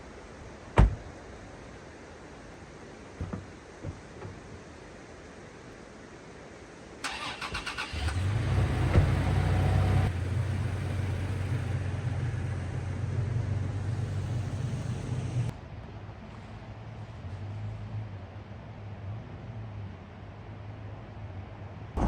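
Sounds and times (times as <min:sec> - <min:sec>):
engine revving and idling: 0:07.8 - 0:15.5.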